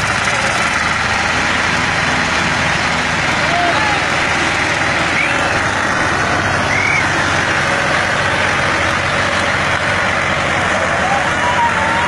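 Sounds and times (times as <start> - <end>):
tractor diesel engine running: 0.0 - 12.0
high-pitched calls: 6.6 - 7.2.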